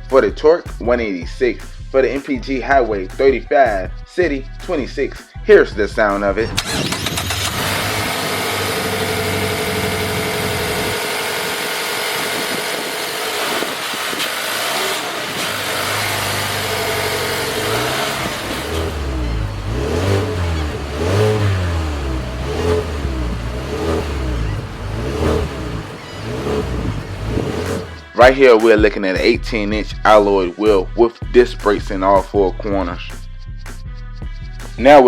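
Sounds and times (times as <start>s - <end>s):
car engine idling and revving: 6.4s - 28.2s.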